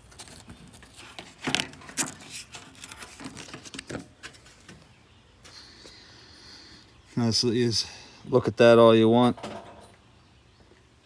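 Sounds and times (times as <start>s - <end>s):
paper rustling and crinkling: 0.0s - 4.8s.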